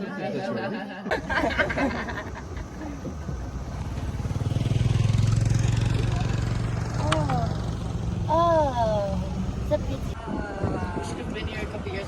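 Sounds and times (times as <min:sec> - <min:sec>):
vehicle engine humming: 0:01.1 - 0:10.2.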